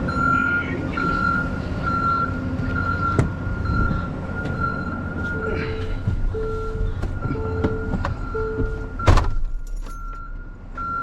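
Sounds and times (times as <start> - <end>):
reversing alarm beeping: 0.0 - 11.0
truck engine running: 0.0 - 11.0.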